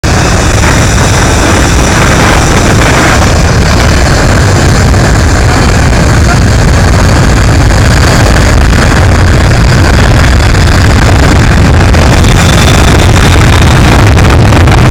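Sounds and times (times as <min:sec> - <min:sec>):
jet engines at takeoff power: 0:00.0 - 0:14.9.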